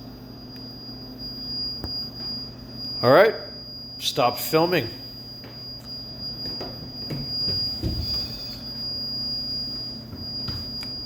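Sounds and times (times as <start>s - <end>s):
low electrical hum: 0.0s - 11.0s
high-pitched electronic tone: 2.9s - 11.0s
wavering tone: 4.8s - 11.0s.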